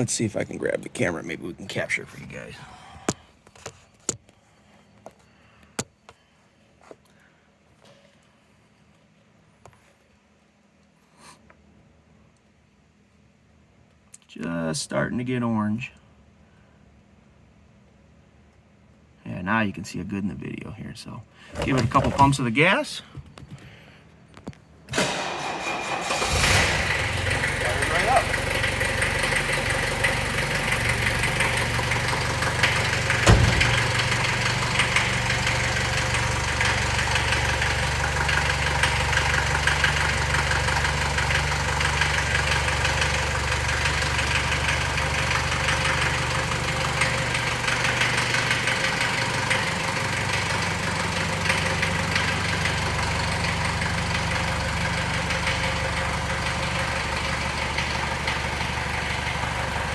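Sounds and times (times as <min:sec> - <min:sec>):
diesel engine idling: 0:25.0 - 0:59.9
sharp thump: 0:33.2 - 0:34.4.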